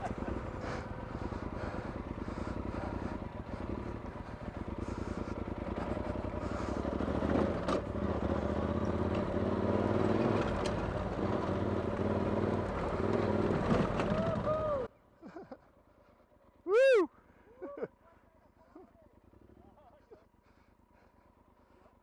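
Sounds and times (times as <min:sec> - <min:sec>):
motorcycle engine accelerating: 0:00.0 - 0:14.9.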